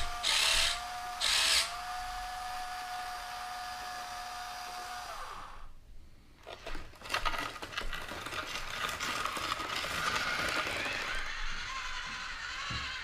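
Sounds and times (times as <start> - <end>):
gritty crackling and rattling: 6.4 - 12.4.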